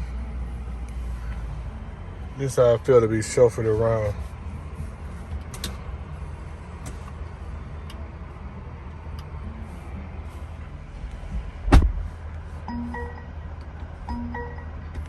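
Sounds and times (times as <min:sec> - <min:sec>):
low steady cabin rumble: 0:00.0 - 0:15.0
sharp thump: 0:11.7 - 0:12.0.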